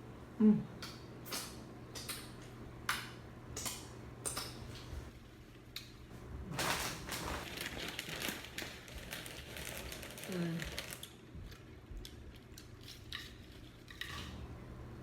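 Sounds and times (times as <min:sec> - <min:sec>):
chewing and utensil noises: 0:08.0 - 0:14.4.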